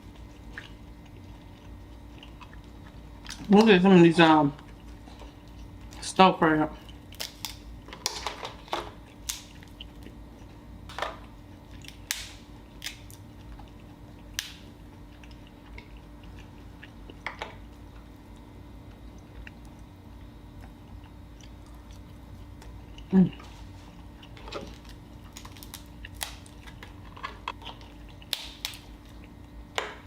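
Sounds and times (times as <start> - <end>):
chewing: 0.1 - 3.7, 4.6 - 6.0, 12.8 - 28.4
crab shells cracking: 7.0 - 8.5, 9.2 - 10.0, 11.8 - 13.2, 24.3 - 29.1.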